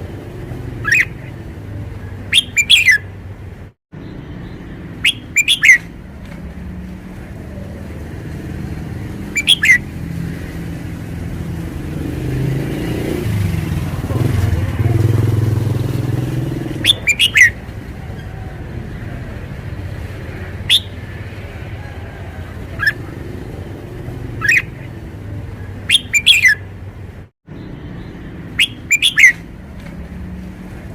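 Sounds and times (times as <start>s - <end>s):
motor vehicle low rumble: 0.0s - 30.9s
bird calling in quick notes: 0.8s - 1.4s, 2.3s - 3.1s, 5.0s - 5.9s, 9.3s - 9.8s, 16.8s - 18.3s, 20.6s - 21.1s, 24.3s - 24.9s, 25.8s - 26.7s, 28.5s - 29.5s.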